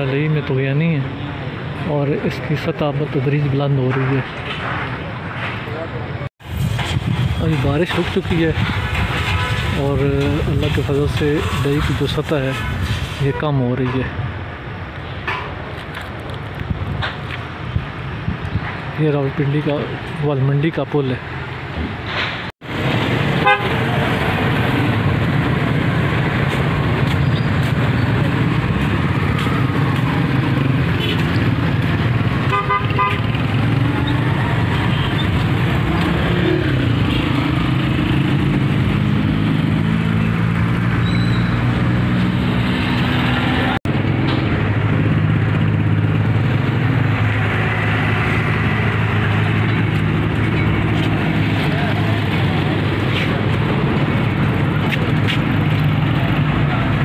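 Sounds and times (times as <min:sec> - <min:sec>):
car and motorcycle engines: 0:00.0 - 0:57.0
steady rushing traffic noise: 0:00.0 - 0:57.0
horns tooting: 0:23.4 - 0:24.0, 0:30.5 - 0:31.6, 0:32.4 - 0:36.1.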